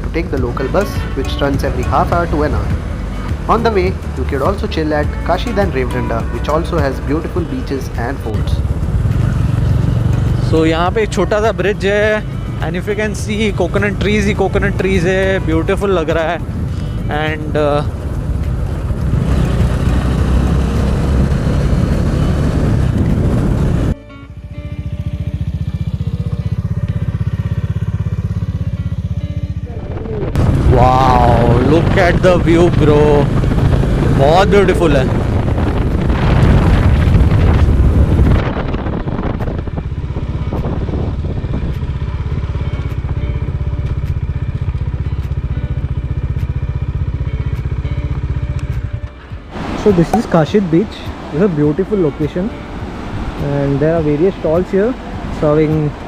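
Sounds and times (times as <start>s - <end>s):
motorcycle engine running: 0.0s - 56.0s
wind noise on microphone: 21.0s - 24.0s, 29.6s - 42.4s.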